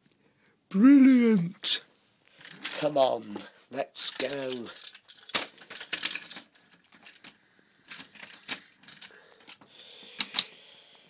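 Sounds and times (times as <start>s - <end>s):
plastic toy trains clicking on track: 2.3s - 10.6s.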